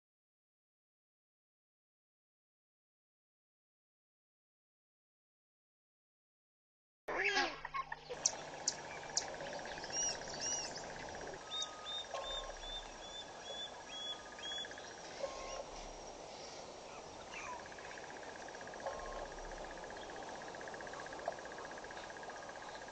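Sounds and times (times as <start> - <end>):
outdoor background noise: 7.1 - 22.9
wild birds calling: 7.3 - 22.9
steady high buzz: 8.1 - 22.9
sharp clicks: 8.2 - 10.6.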